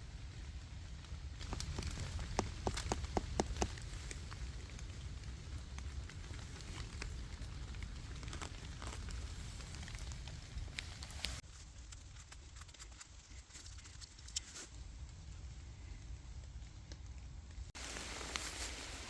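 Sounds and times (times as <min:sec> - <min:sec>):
raindrops pattering and dripping: 0:00.1 - 0:11.4.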